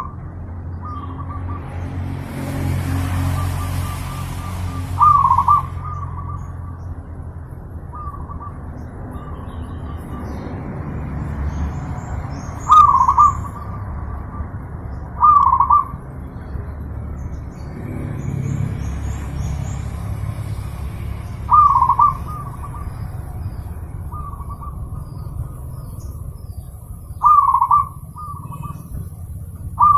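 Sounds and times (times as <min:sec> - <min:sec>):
steady low rumble: 0:00.0 - 0:29.9
dove cooing: 0:03.3 - 0:06.5, 0:12.7 - 0:14.5, 0:15.2 - 0:16.0, 0:21.5 - 0:23.2, 0:27.2 - 0:29.0.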